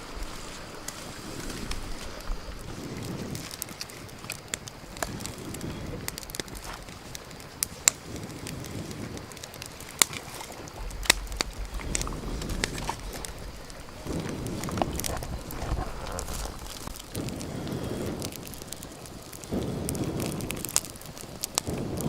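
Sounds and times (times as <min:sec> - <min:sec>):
wood fire crackling: 0:00.0 - 0:22.0
low rumble: 0:10.7 - 0:18.0.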